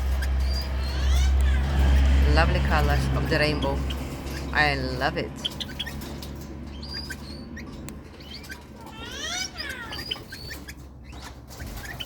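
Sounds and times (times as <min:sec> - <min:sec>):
steady low hum: 0:00.0 - 0:11.8
small parrots chirping: 0:00.0 - 0:12.0
parrot call rising and falling: 0:00.4 - 0:02.1, 0:06.8 - 0:10.8.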